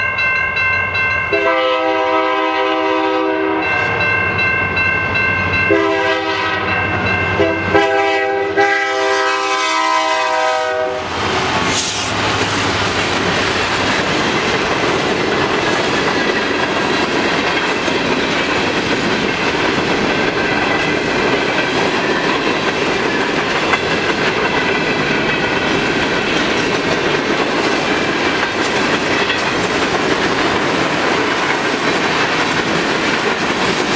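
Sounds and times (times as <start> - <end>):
locomotive air horn: 1.3 - 4.0, 5.7 - 12.2
locomotives passing: 9.6 - 33.9
train cars clattering over rail joints: 11.4 - 33.9.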